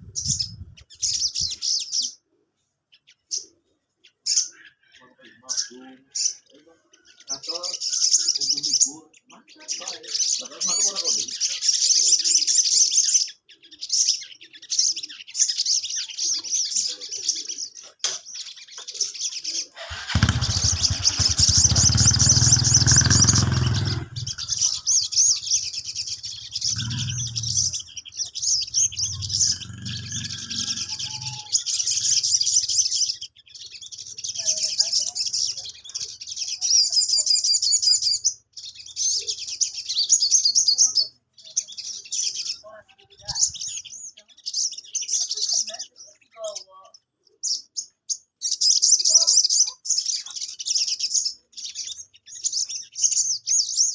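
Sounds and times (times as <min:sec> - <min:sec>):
sunbird singing chattering runs: 0:00.0 - 0:02.2, 0:03.0 - 0:53.9.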